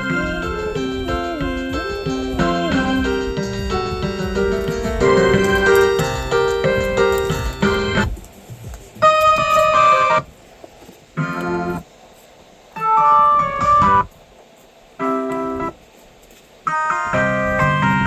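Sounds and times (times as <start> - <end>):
electronic keyboard christmas tune: 0.0 - 10.4, 11.2 - 11.8, 12.8 - 14.1, 15.0 - 15.8, 16.7 - 18.0.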